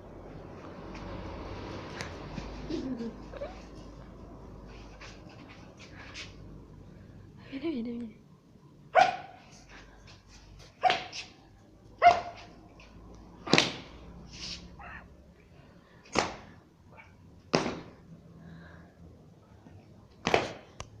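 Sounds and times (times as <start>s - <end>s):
dog barking: 8.9s - 9.5s, 10.8s - 11.1s, 12.0s - 12.5s, 14.8s - 15.1s.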